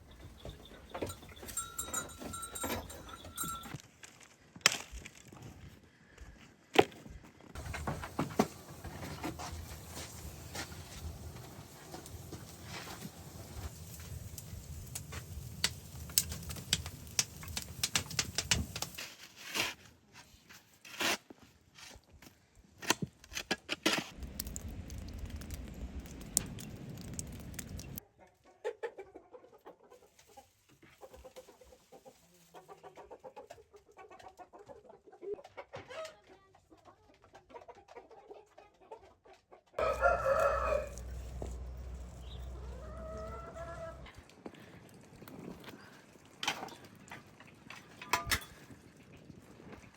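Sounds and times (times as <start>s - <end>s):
chickens clucking: 28.1s - 44.2s
rooster crowing: 39.8s - 44.1s.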